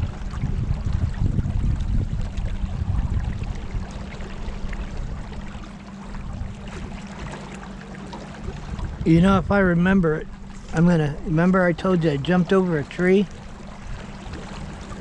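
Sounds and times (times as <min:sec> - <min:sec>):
low rumble: 0:00.0 - 0:15.0
river water moving past boat: 0:00.0 - 0:15.0.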